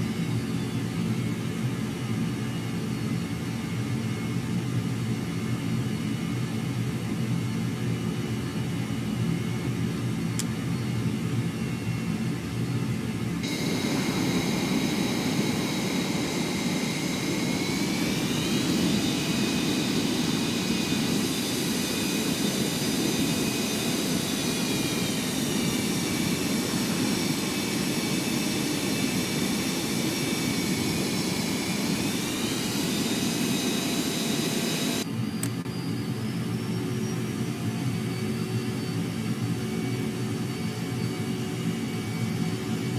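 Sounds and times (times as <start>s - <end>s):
jet engine whine: 0.0s - 42.9s
steady jet rush: 13.4s - 35.0s.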